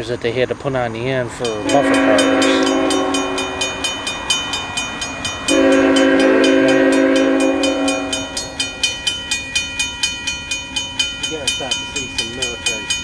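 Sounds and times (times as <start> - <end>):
rapid even ringing: 0.0 - 13.0
locomotive air horn chord: 1.4 - 9.2.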